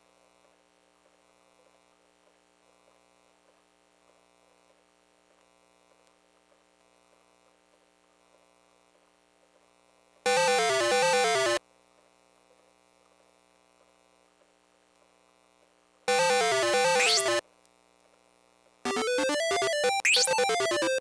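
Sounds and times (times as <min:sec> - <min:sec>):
falling electronic beeping tones: 0:10.3 - 0:11.6, 0:16.1 - 0:17.4, 0:18.9 - 0:21.0.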